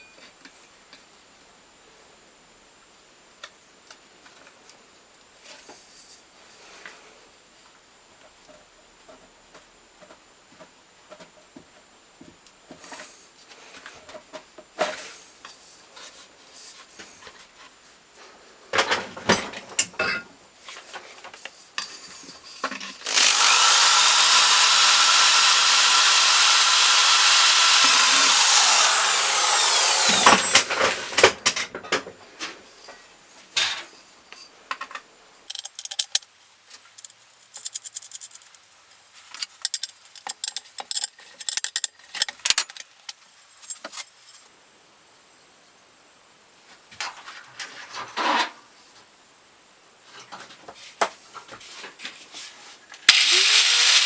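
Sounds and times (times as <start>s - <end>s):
power tool running: 23.0s - 31.4s, 35.5s - 44.5s, 53.1s - 54.0s
clattering: 35.5s - 44.5s
clicks and knocks: 35.5s - 44.5s.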